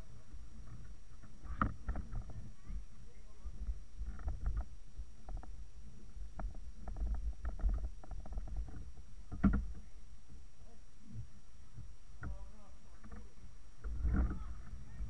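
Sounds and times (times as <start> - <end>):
wind buffeting microphone: 13.3 - 15.0.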